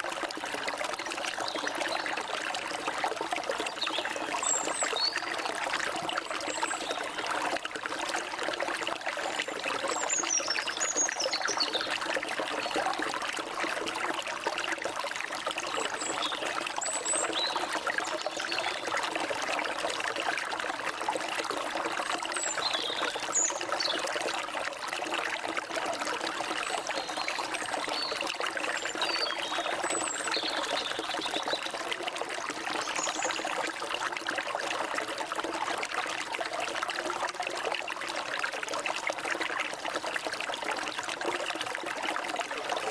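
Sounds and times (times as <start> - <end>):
stream water trickling: 0.0 - 42.9.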